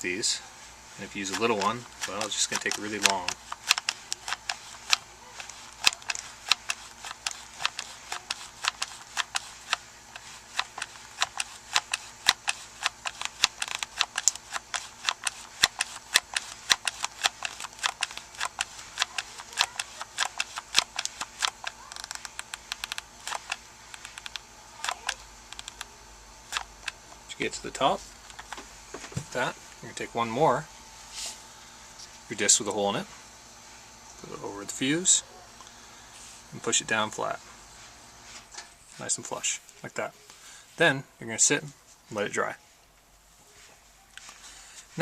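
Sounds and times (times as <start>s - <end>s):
glue gun trigger clicking: 1.3s - 25.9s.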